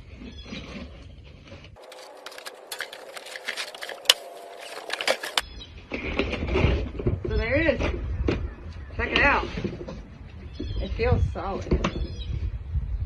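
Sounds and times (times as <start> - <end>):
packaging crackling and rustling: 1.8 - 5.4.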